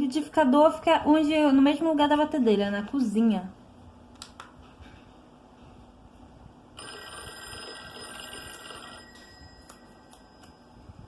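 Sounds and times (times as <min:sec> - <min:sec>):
telephone ringing: 0:06.8 - 0:10.9.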